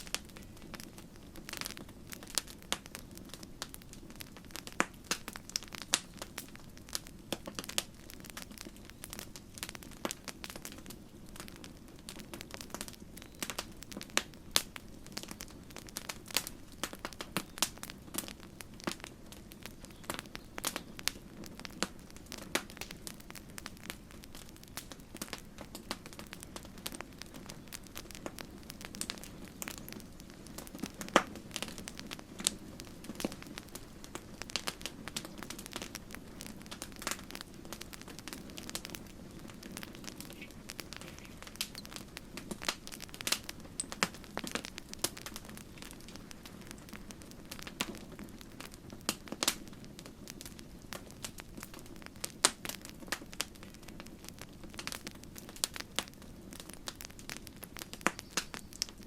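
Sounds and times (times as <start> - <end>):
campfire crackling and popping: 0.0 - 59.0
low rumble of burning: 0.0 - 59.0.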